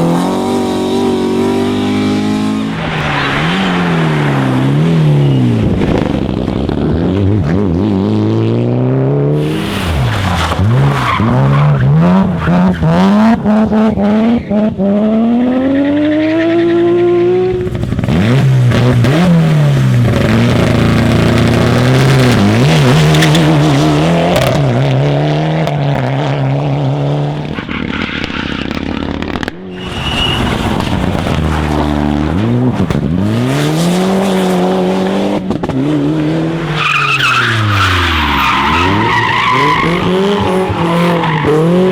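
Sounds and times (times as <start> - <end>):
rally car engines revving: 0.0 - 41.9
tyres squealing: 9.4 - 13.4, 29.7 - 32.6, 36.7 - 41.9.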